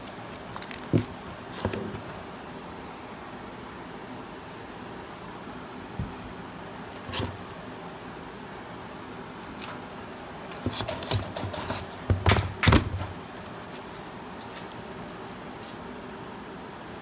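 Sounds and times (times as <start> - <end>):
steady room hum: 0.0 - 17.0
handling scrapes and clicks: 6.8 - 7.6, 10.5 - 14.9.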